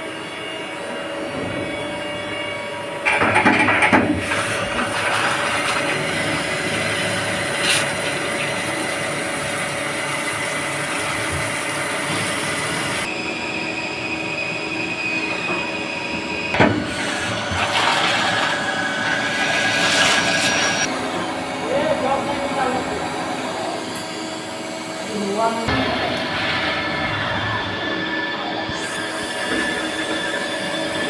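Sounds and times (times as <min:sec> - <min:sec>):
machine whining and rumbling: 0:00.0 - 0:31.0.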